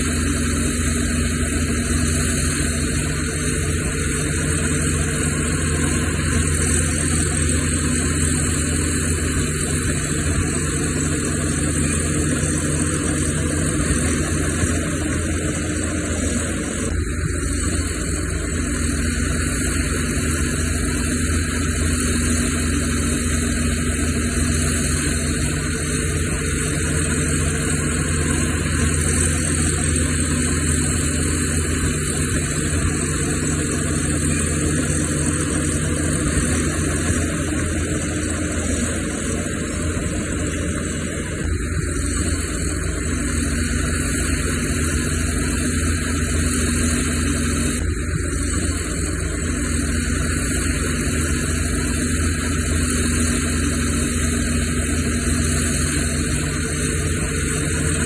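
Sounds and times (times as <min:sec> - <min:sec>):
heavy diesel machinery droning: 0:00.0 - 0:58.0
steady hum: 0:00.0 - 0:58.0.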